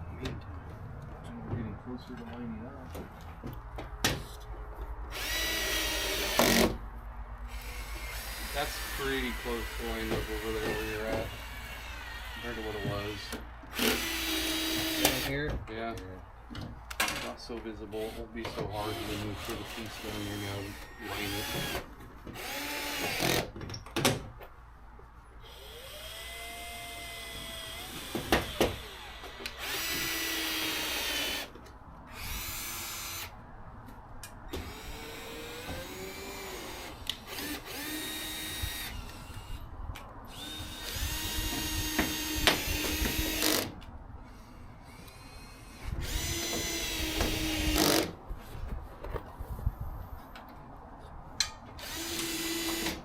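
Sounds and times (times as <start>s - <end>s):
power drill whining: 5.1s - 6.8s, 7.6s - 15.3s, 18.1s - 21.8s, 22.4s - 23.5s, 25.4s - 31.5s, 34.6s - 39.6s, 40.3s - 43.7s, 44.3s - 48.1s, 51.8s - 53.0s.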